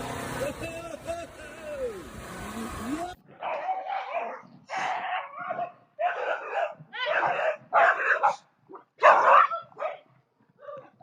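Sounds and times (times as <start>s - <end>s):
dog barking: 3.4s - 10.9s.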